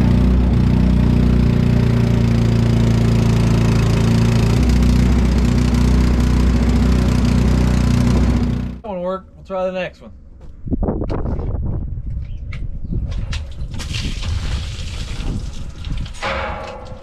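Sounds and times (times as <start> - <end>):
engine running steadily: 0.0 - 8.8.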